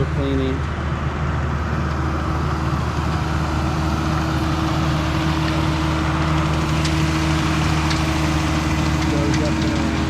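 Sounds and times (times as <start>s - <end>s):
motor engine idling: 0.0s - 10.0s.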